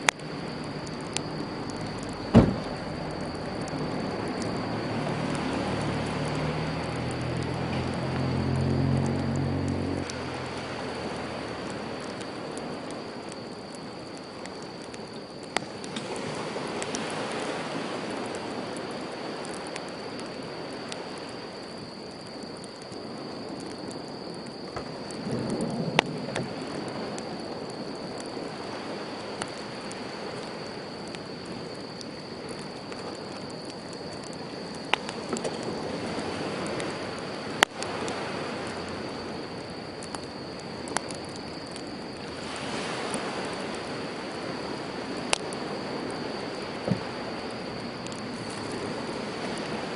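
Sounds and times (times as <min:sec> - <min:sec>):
campfire crackling and popping: 0:00.0 - 0:49.9
sea waves washing onto shore: 0:00.0 - 0:49.9.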